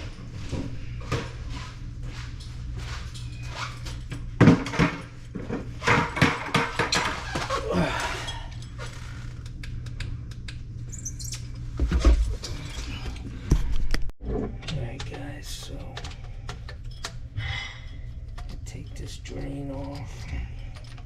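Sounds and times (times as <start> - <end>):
steady low hum: 0.0 - 21.0
tools knocking and scraping: 3.2 - 7.6.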